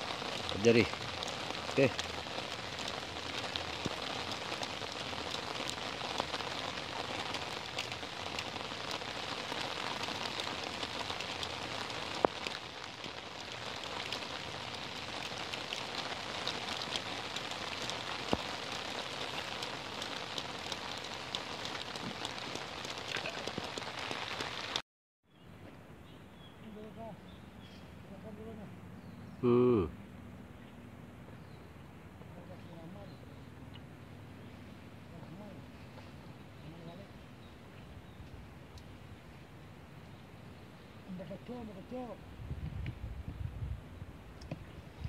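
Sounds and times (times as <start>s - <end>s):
close raindrop ticks: 0.0s - 24.8s, 38.1s - 39.0s, 41.2s - 43.5s, 44.3s - 45.0s
rain falling on a lake: 0.0s - 24.8s, 32.3s - 45.0s.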